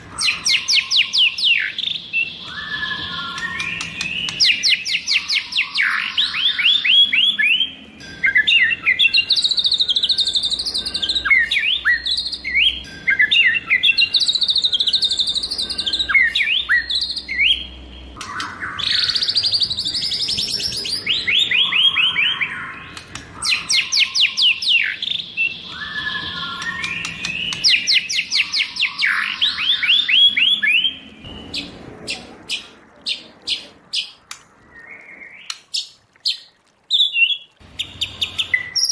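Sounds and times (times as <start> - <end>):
songbird whistling and warbling: 0.1 - 38.9
bird sharp clicking notes: 2.4 - 5.3, 26.3 - 29.2.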